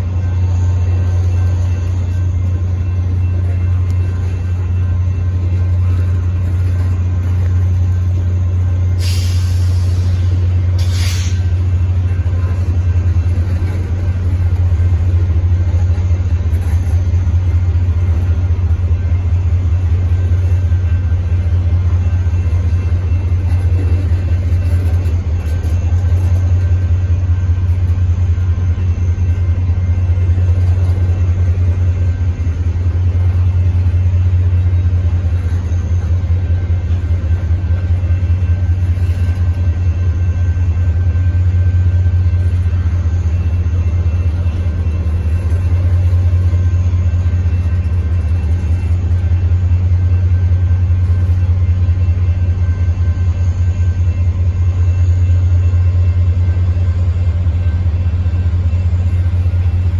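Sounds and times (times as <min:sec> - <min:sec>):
steel wheels rumbling on rail: 0:00.0 - 0:59.9.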